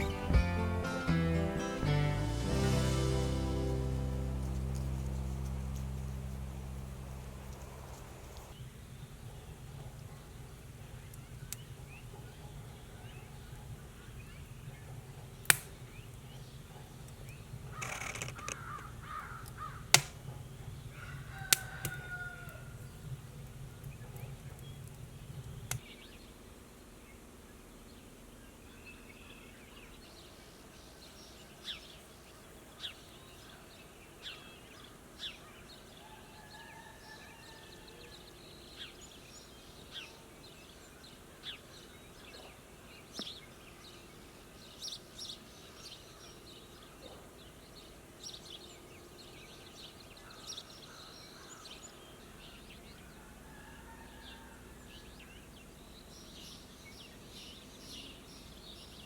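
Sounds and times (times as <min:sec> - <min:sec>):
low rumble: 0:02.3 - 0:11.8
harsh bird calls: 0:05.0 - 0:26.2
sharp clicks: 0:15.4 - 0:15.8, 0:17.1 - 0:20.3.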